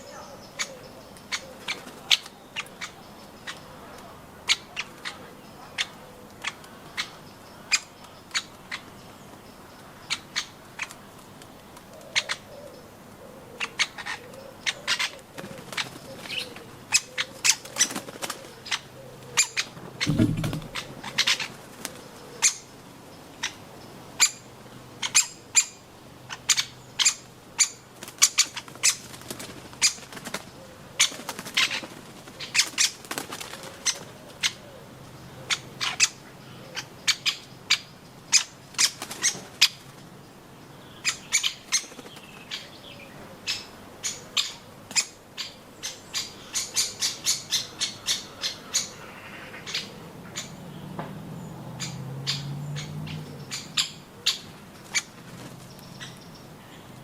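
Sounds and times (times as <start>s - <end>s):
dull thump: 20.0s - 20.9s.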